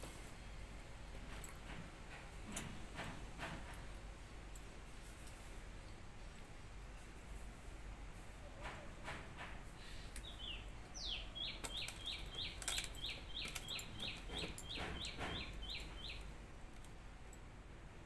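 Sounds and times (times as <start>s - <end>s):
bird chirping: 9.8s - 16.4s.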